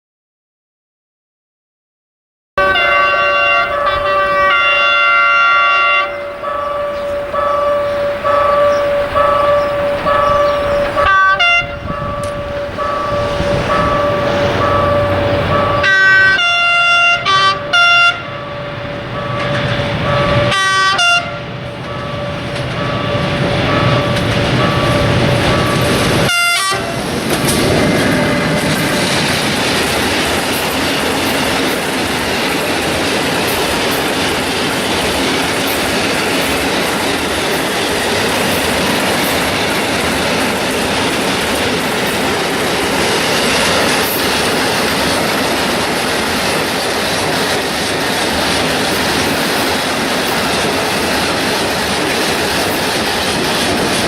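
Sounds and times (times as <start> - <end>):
locomotive horn blasts: 2.6 - 23.2, 23.8 - 28.7
steady tone: 11.7 - 16.5
train wheels clacking over rail joints: 17.2 - 54.0.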